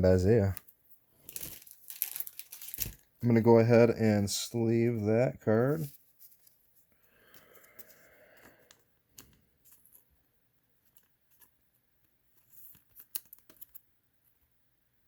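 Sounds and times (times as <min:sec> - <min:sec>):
card and plastic sleeve rustling: 0:00.4 - 0:03.3, 0:04.6 - 0:10.1, 0:10.8 - 0:13.9.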